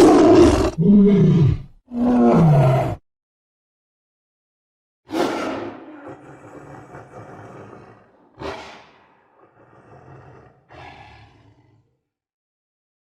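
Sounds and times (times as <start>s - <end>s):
tiger roaring: 0.0s - 3.0s, 5.1s - 12.0s.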